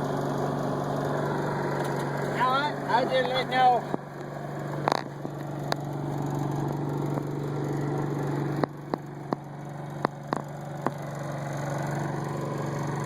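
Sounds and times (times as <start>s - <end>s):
engine idling: 0.0s - 13.0s
sharp clicks and knocks: 8.6s - 11.1s.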